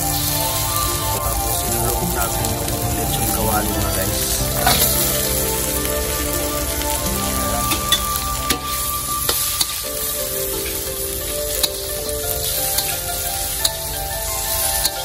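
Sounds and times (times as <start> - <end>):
pork sizzling in hot oil: 0.0 - 15.0.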